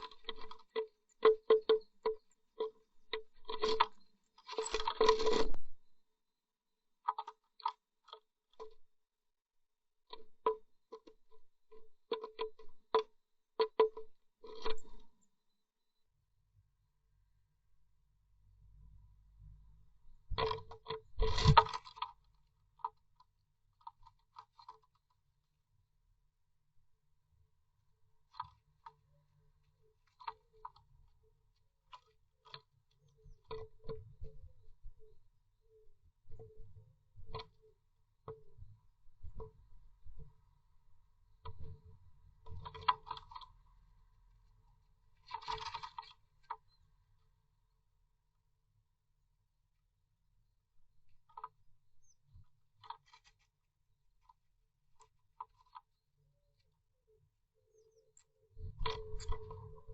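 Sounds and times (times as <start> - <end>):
bird tapping and scratching in nest box: 0.0 - 6.0, 7.0 - 8.8, 10.1 - 15.1, 20.3 - 25.1, 41.4 - 43.6, 45.2 - 46.7, 52.8 - 53.6, 55.0 - 56.0.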